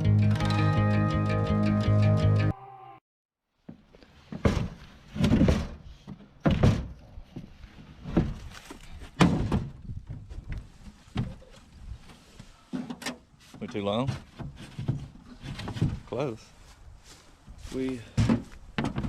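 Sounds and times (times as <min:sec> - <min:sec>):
quiet shuffling: 0:16.0 - 0:18.0.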